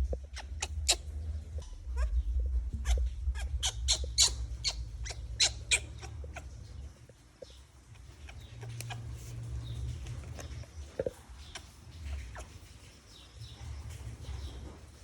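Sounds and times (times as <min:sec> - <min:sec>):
monkey squeaking: 0:00.0 - 0:06.6
low rumble: 0:00.0 - 0:11.1.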